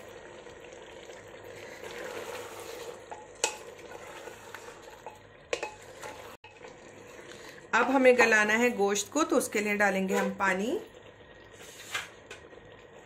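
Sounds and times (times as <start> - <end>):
masala sizzling in a pot: 0.0 - 13.0
wooden spoon stirring: 1.6 - 8.8
spoon knocking against pot: 5.1 - 5.8.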